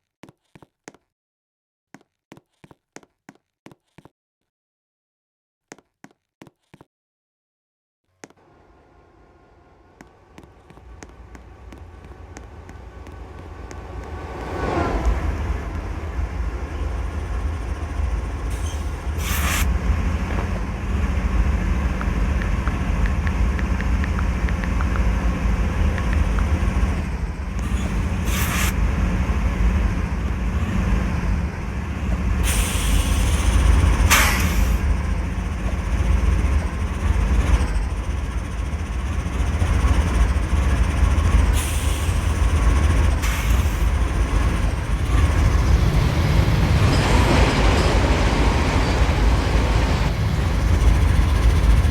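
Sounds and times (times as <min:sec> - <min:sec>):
train wheels rumbling on rail: 0:08.4 - 0:51.9.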